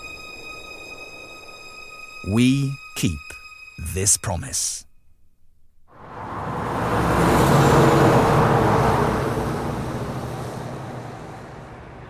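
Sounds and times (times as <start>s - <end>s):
truck driving past: 5.9s - 12.0s.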